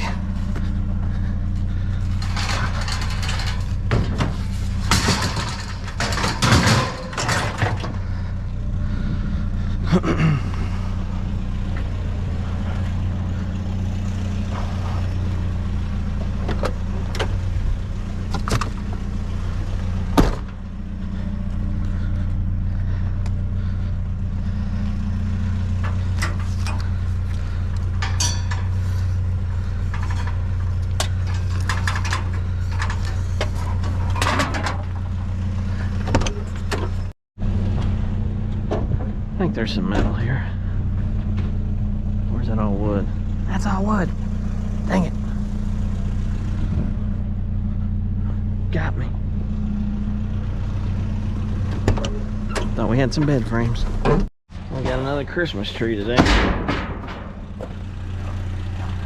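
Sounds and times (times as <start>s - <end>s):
scrap metal knocking and clanking: 0.0s - 8.4s, 25.7s - 37.1s, 56.1s - 59.0s
vehicle engine idling: 0.0s - 59.0s.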